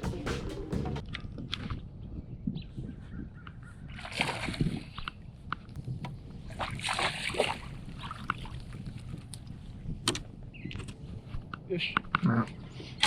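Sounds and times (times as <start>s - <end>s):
water splashing at a boat: 3.9s - 9.8s.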